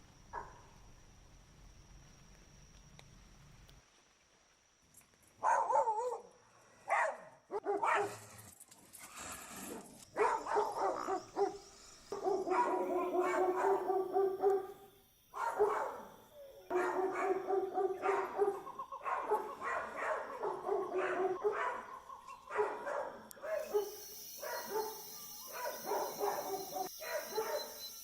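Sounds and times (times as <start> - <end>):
dog barking and yelping: 5.4 - 6.3, 6.9 - 8.2, 10.2 - 14.8, 15.4 - 27.8.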